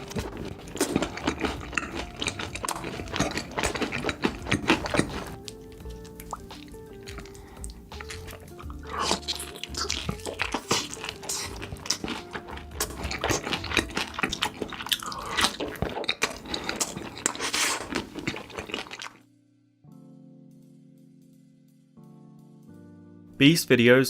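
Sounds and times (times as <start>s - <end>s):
crunching bites: 0.0s - 19.2s
wet chewing: 0.0s - 19.2s
faint background music: 0.0s - 24.0s.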